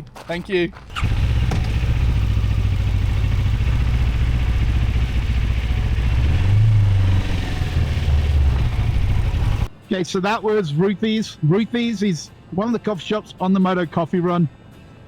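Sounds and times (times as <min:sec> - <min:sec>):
motorcycle engine running: 0:00.9 - 0:09.7.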